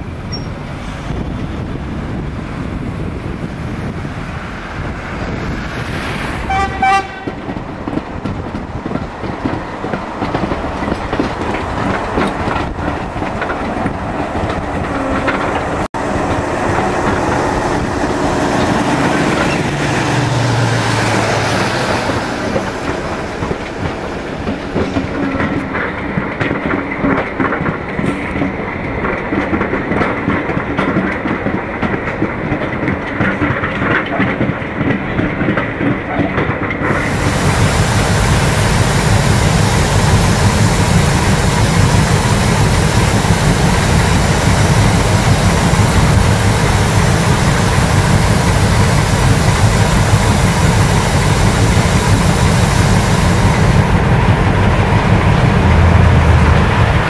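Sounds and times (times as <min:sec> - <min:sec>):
train wheels clattering: 0:04.8 - 0:57.0
locomotive horn: 0:06.4 - 0:07.4.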